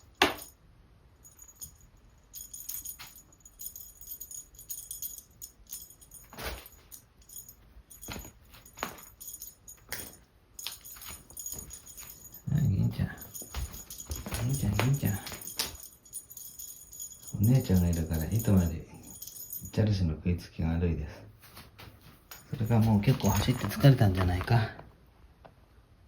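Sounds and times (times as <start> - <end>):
small bells jingling: 0.0 - 0.6, 1.2 - 20.0, 22.3 - 24.6
paws thumping: 13.0 - 15.9.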